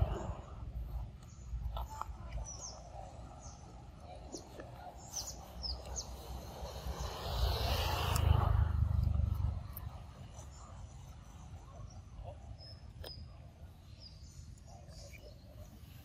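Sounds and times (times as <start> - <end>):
low rumbling noise: 0.0 - 1.8, 6.0 - 11.8
birds chirping: 0.0 - 8.4, 9.1 - 16.0.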